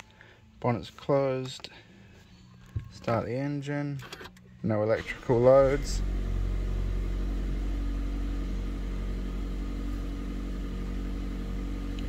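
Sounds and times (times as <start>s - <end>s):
car engine idling: 5.0s - 12.0s.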